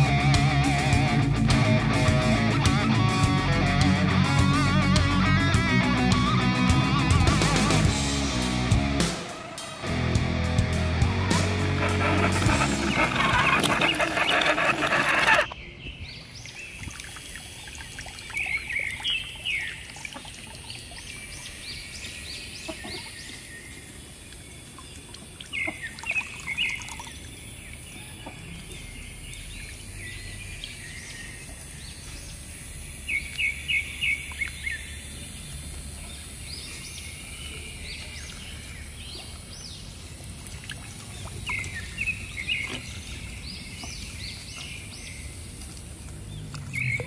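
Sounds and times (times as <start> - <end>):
birds chirping: 11.0 - 47.0.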